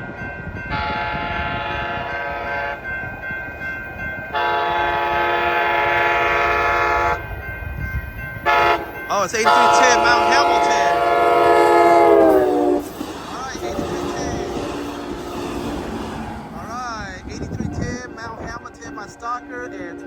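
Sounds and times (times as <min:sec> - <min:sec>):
rumble of approaching train: 0:00.0 - 0:20.0
train horn chord blasts: 0:00.7 - 0:02.9, 0:04.3 - 0:07.3, 0:08.4 - 0:12.9, 0:13.5 - 0:15.8, 0:18.1 - 0:20.0.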